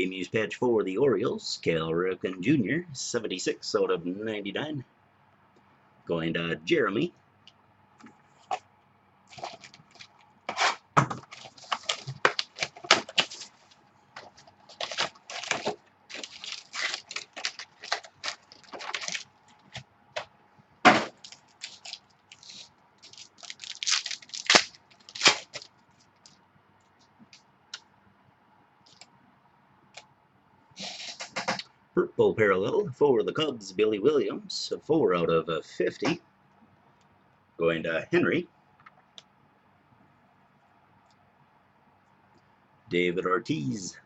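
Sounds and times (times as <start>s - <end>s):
card wrappers crackling and tearing: 9.3s - 19.8s, 21.1s - 26.3s.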